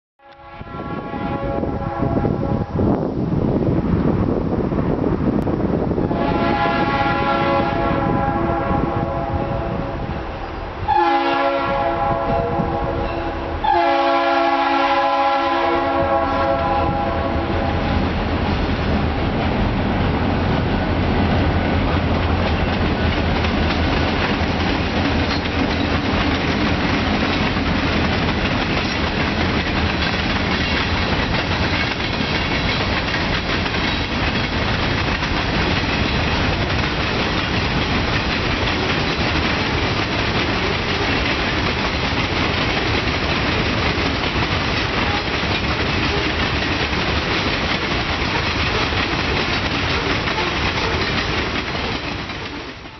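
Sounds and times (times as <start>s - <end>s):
diesel locomotive engine hum: 0.4s - 52.9s
freight cars rumbling: 16.0s - 52.9s
wheels clacking over rail joints: 17.9s - 52.9s.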